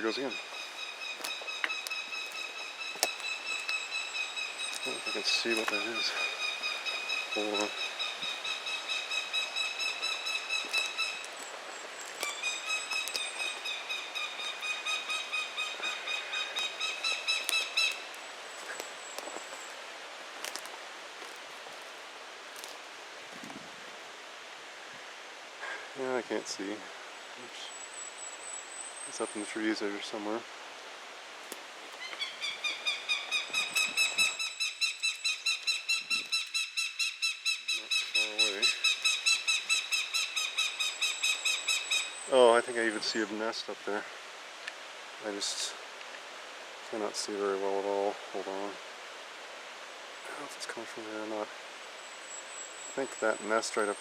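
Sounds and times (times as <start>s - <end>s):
hawk chattering call: 0.0s - 11.4s, 12.2s - 18.2s, 32.0s - 42.3s.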